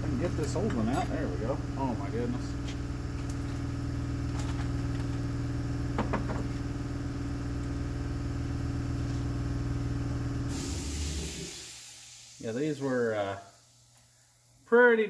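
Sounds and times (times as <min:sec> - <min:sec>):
brief hiss: 0:10.5 - 0:14.1.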